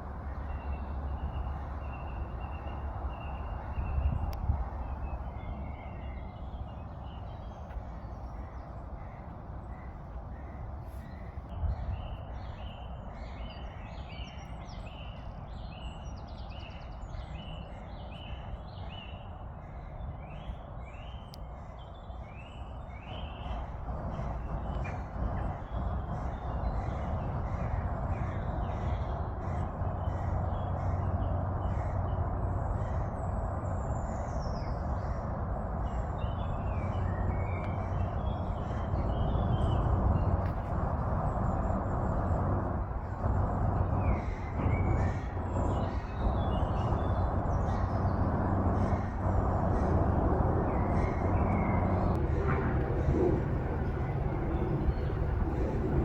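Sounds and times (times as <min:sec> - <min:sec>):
birds chirping: 0:22.5 - 0:56.0
low rumble: 0:23.6 - 0:56.0.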